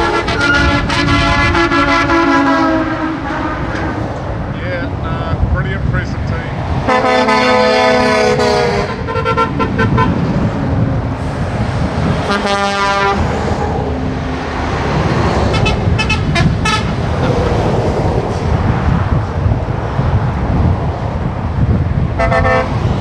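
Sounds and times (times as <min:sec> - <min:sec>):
vehicle horns tooting: 0:00.0 - 0:04.1, 0:06.0 - 0:10.2, 0:12.2 - 0:13.3, 0:15.5 - 0:17.2, 0:22.2 - 0:23.0
trucks passing: 0:00.0 - 0:23.0.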